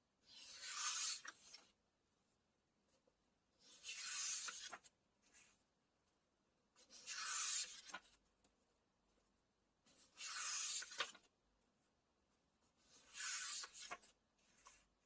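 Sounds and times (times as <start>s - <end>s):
book pages turning: 0.3s - 1.7s, 3.6s - 5.5s, 6.8s - 8.2s, 9.9s - 11.3s, 12.8s - 14.9s
faint paper rustle: 6.8s - 9.3s, 9.9s - 11.3s, 12.6s - 15.0s.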